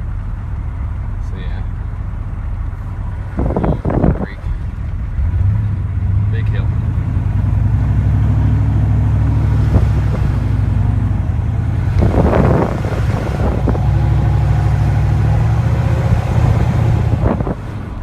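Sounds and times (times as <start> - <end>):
diesel pickup engine running: 0.0 - 18.0.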